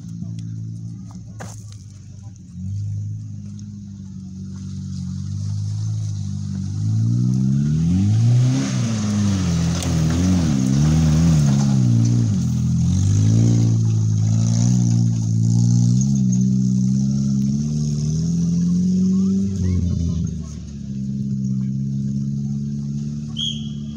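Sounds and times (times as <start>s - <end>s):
tyres scrabbling in loose dirt: 0.0s - 7.9s, 8.5s - 18.3s
off-road vehicle engine revving: 0.0s - 23.9s.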